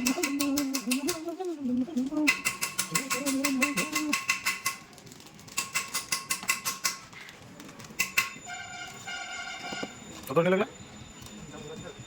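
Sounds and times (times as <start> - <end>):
rapid metallic clicking: 2.2 - 7.3.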